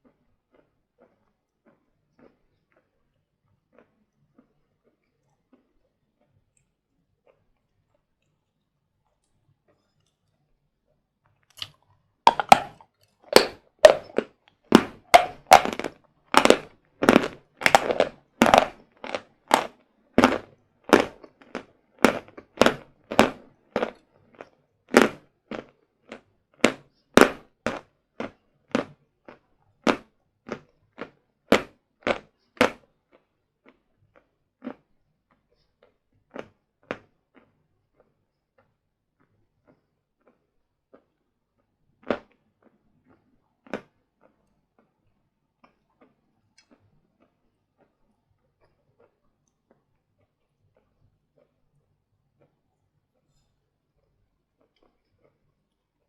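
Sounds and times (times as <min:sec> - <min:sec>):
chalk being chewed crunching: 0:00.0 - 0:10.5, 0:11.4 - 0:45.0.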